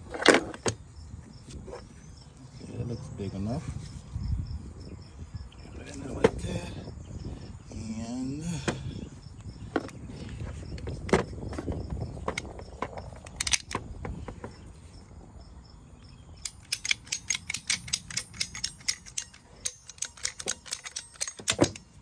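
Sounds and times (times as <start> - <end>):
hands and tools clicking on hoses: 9.7 - 14.6, 16.4 - 22.0.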